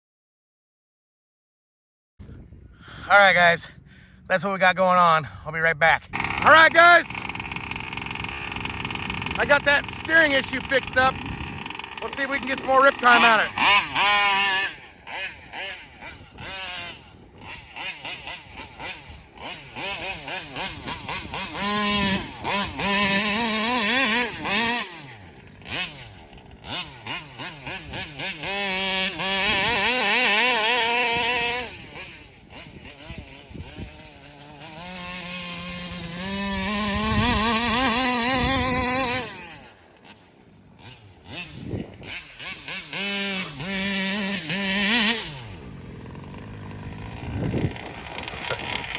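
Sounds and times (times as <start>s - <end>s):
rc car two-stroke engine revving: 6.1s - 48.9s.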